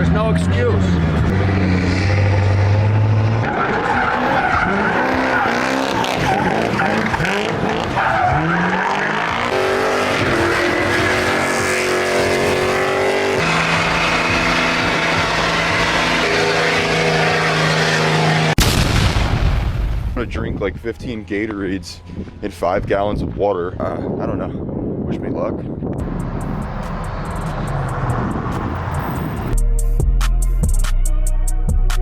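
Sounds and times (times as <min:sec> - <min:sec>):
tires squealing: 0:00.0 - 0:18.6, 0:26.0 - 0:29.6
truck engine revving: 0:00.0 - 0:18.6, 0:26.0 - 0:30.6.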